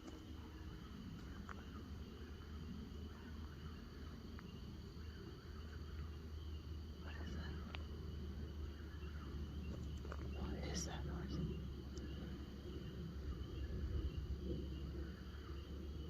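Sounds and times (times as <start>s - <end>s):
crickets trilling: 0.0s - 16.0s
low steady rumble: 0.0s - 16.0s
faint ticks: 7.1s - 8.0s, 9.7s - 12.4s.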